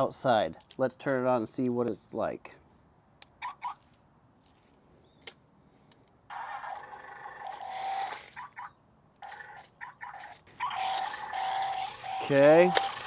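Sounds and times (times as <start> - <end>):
small electric motors whirring: 6.3 - 8.6, 9.2 - 13.0.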